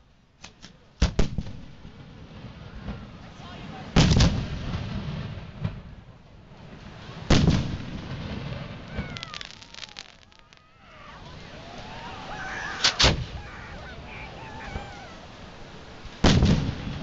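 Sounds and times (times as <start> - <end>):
fireworks booms: 1.0 - 17.0
rapid fireworks crackling: 6.5 - 17.0.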